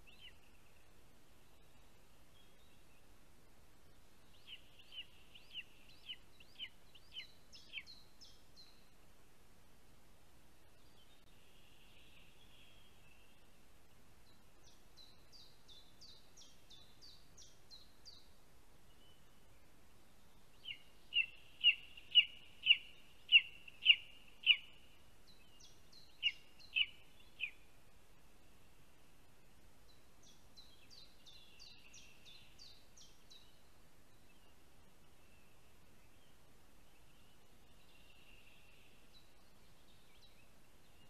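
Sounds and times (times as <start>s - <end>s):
birds calling: 20.6s - 24.8s.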